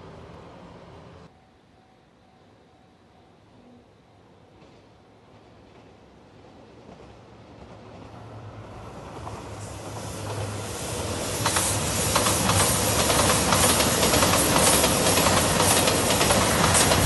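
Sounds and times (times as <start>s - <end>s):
train passing at speed: 0.0s - 17.0s
wheels rattling over track: 9.2s - 17.0s.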